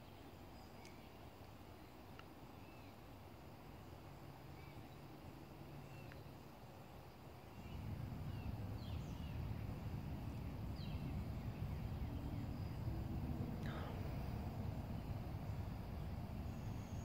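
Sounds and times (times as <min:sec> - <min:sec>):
small birds chirping: 0:00.0 - 0:17.0
low rumble: 0:07.5 - 0:17.0.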